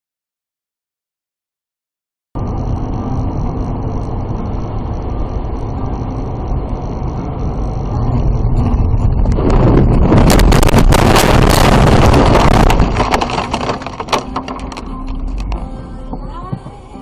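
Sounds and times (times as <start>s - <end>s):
car driving rumble: 2.4s - 17.0s.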